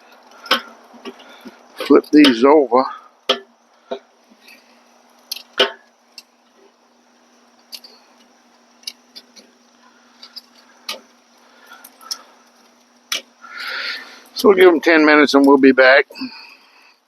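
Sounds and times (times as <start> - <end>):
faint steady hum: 0.0 - 17.0
metal tongs clicking on grill grate: 5.2 - 6.3, 7.6 - 9.5, 11.7 - 13.3.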